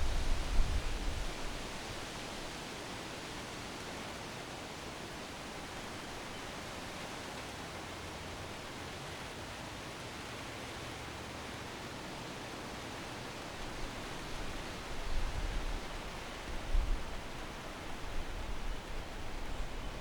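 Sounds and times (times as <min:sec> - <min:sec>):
wind buffeting microphone: 0:00.0 - 0:01.7
wind rustling trees: 0:00.0 - 0:20.0.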